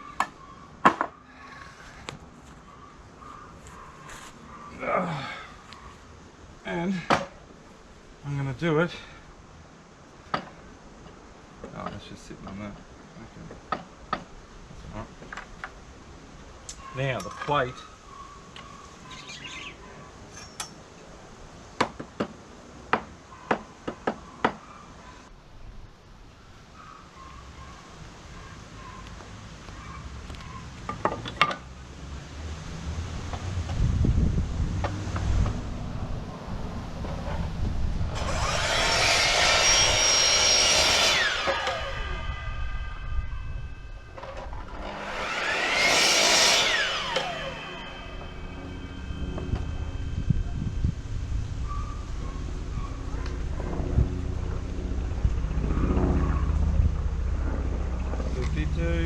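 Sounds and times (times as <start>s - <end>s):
power saw running: 38.1s - 51.3s.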